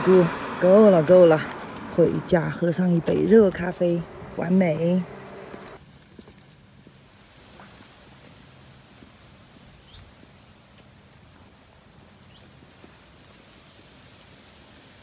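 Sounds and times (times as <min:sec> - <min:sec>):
outdoor background hiss: 0:00.0 - 0:15.0
bird chirping: 0:09.8 - 0:10.2, 0:12.2 - 0:12.6.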